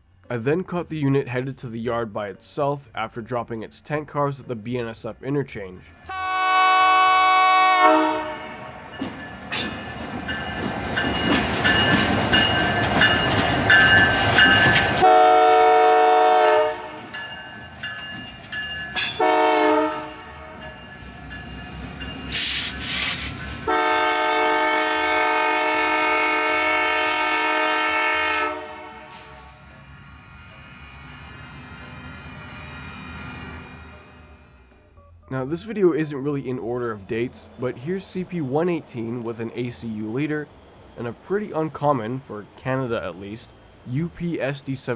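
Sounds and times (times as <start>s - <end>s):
diesel locomotive horn: 6.0s - 8.9s, 15.0s - 17.1s, 19.0s - 20.6s, 23.6s - 29.8s
rumbling train noise: 7.7s - 35.0s, 35.6s - 44.9s.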